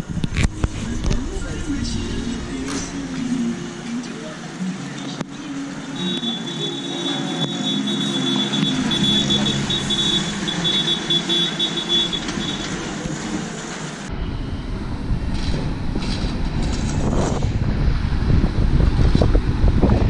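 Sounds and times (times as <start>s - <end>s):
diesel engine running: 0.0s - 18.8s
high-pitched beeping: 0.5s - 13.0s
wind buffeting microphone: 14.1s - 20.0s.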